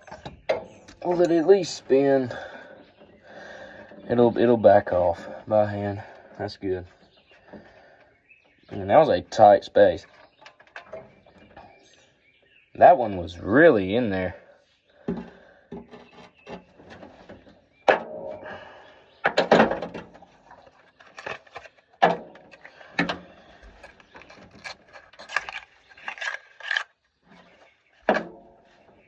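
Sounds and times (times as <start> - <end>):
rubbing and rattling: 19.3 - 28.8.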